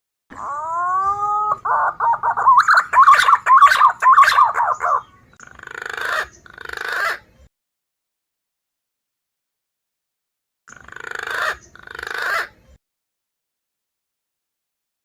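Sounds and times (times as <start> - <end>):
pigeon whistling calls: 0.4 - 7.2.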